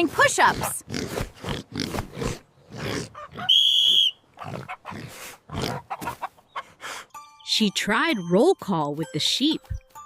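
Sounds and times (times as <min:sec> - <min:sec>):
pigs grunting and oinking: 0:00.0 - 0:03.5, 0:04.3 - 0:06.8
high-pitched whistle blast: 0:03.5 - 0:04.2.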